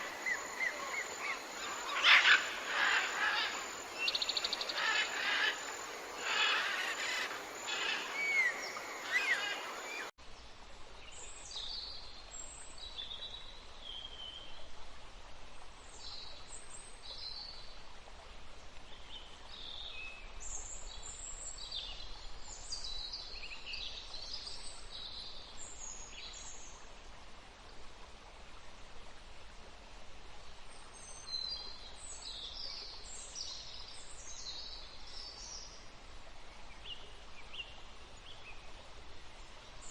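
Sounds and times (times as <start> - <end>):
wild birds chirping: 0.0 - 10.1
faint steady hiss: 0.0 - 39.9.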